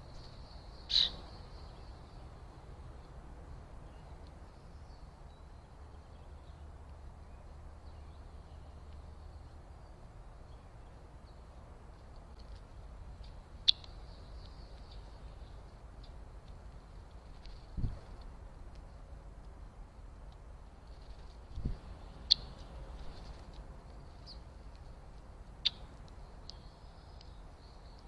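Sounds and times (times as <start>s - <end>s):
faint bird chirps: 0.0s - 2.3s, 13.1s - 16.2s, 21.0s - 23.3s
sharp loud bird chirp: 0.5s - 1.8s, 22.2s - 22.6s.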